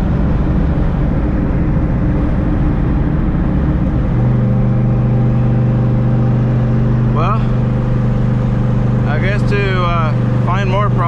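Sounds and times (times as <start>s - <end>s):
car engine exhaust rumble: 0.0s - 11.0s.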